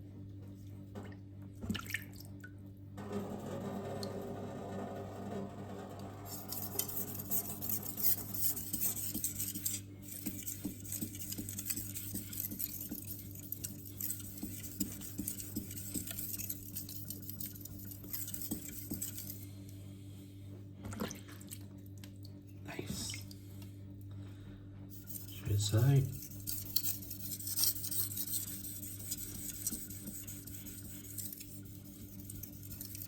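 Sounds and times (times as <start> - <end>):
steady low hum: 0.0 - 33.0
knife scraping on whetstone: 6.3 - 19.4, 25.0 - 33.0.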